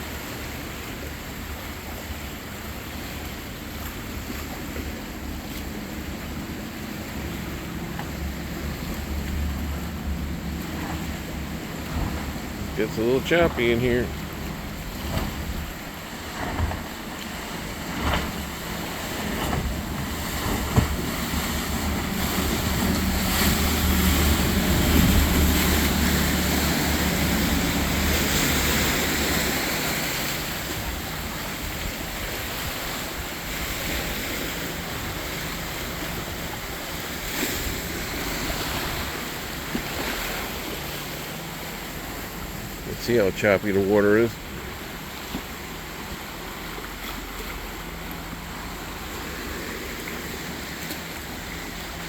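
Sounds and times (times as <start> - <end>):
motorboat engine drone: 0.0 - 52.0
water splashing and slapping: 0.0 - 52.0
wind buffeting microphone: 13.4 - 29.6.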